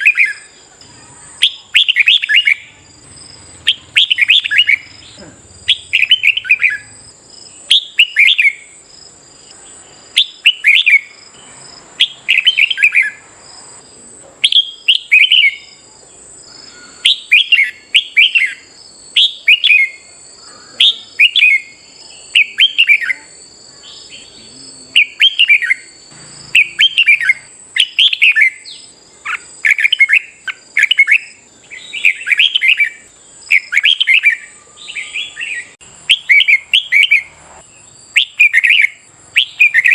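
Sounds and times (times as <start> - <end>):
birds singing warbled phrases: 0.0 - 39.9.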